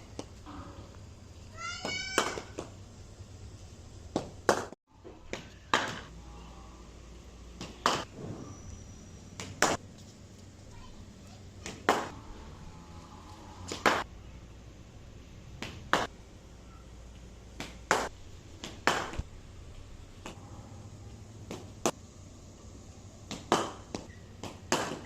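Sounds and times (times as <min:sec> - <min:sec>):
cricket bat hitting ball: 0:01.8 - 0:02.7, 0:04.2 - 0:06.1, 0:17.6 - 0:19.2, 0:23.3 - 0:25.0.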